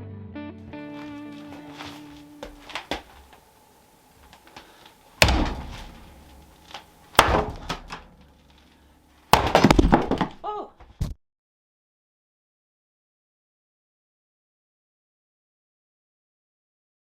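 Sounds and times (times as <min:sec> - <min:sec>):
heavy thumps: 0:01.0 - 0:03.4, 0:04.2 - 0:11.2.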